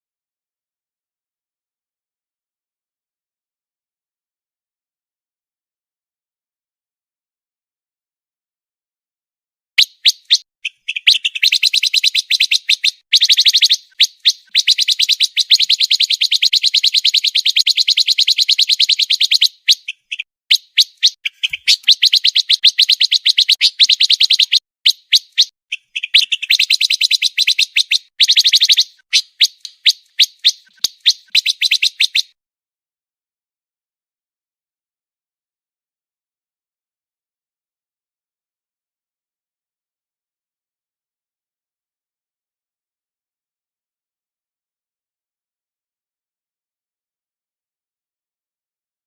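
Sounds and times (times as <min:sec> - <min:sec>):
bird singing rapid trills: 0:09.8 - 0:32.4
single bird chirps: 0:09.8 - 0:32.4.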